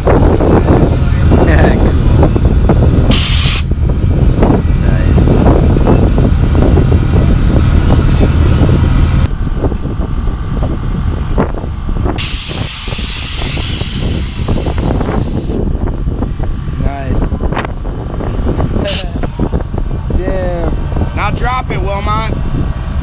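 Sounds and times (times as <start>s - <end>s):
wind rumbling on microphone: 0.0s - 23.0s
steady hiss of air: 3.1s - 3.7s, 12.2s - 15.6s.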